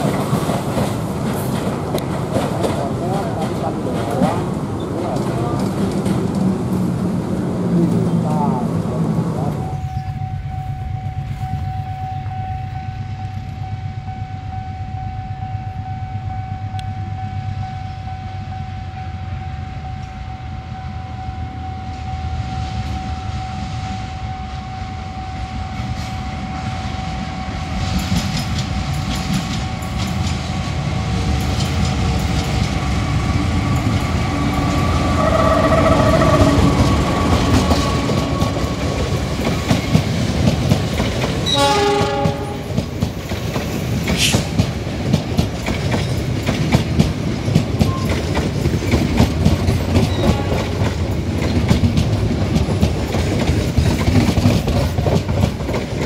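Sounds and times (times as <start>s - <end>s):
train wheels clicking on rails: 0.0s - 8.1s, 25.7s - 56.0s
train rumbling: 0.0s - 56.0s.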